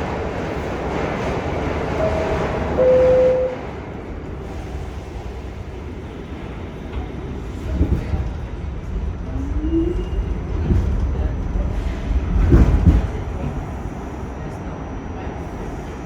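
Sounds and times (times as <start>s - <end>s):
subway car low rumble: 0.0s - 16.0s
two-tone door chime: 2.0s - 3.6s.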